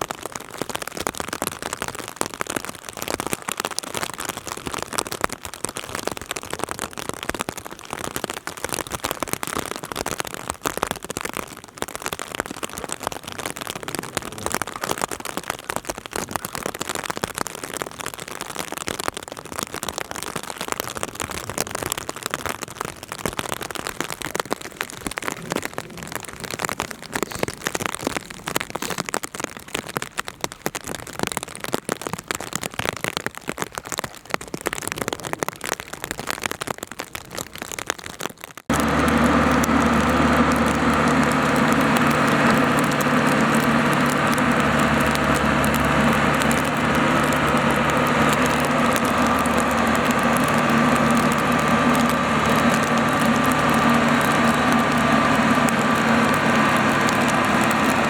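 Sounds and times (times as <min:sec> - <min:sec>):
crackling patter: 0:00.0 - 0:58.0
diesel engine running: 0:38.7 - 0:58.0.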